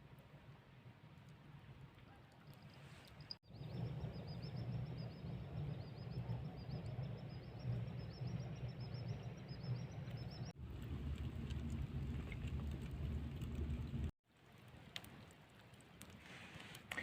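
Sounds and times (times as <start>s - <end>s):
low steady rumble: 2.5s - 14.1s.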